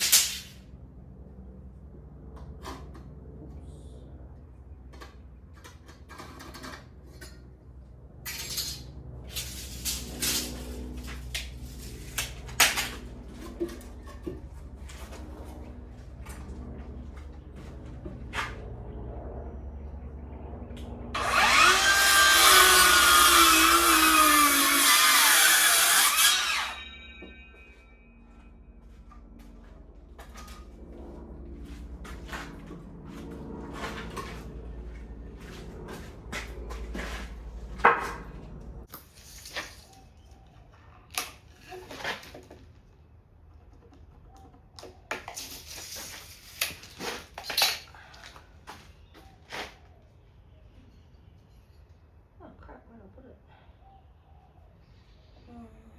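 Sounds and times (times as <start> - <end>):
power tool cutting timber: 21.2 - 27.4.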